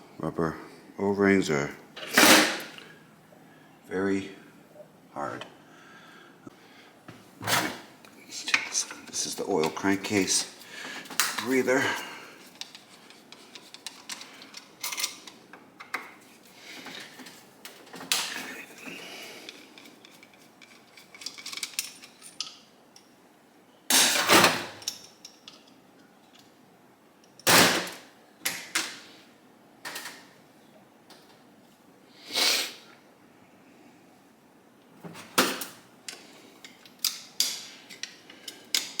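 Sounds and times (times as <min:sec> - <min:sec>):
metal tools clinking: 0:11.2 - 0:15.4, 0:19.5 - 0:23.1.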